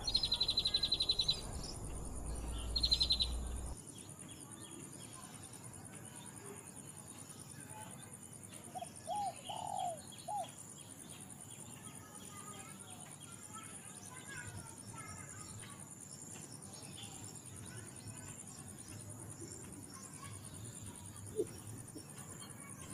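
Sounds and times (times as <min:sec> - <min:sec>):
bird calls: 0:00.0 - 0:03.8, 0:08.7 - 0:10.6
pulsing high insect buzz: 0:00.0 - 0:03.8.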